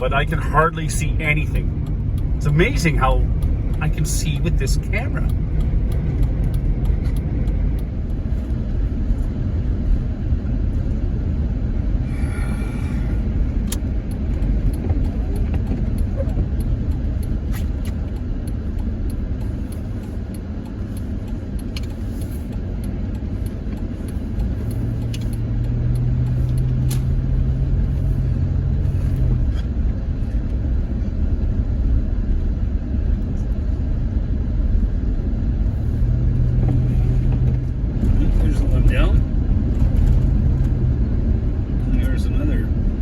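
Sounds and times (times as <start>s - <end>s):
van engine and road rumble: 0.0s - 43.0s
deeper drone: 11.6s - 15.4s.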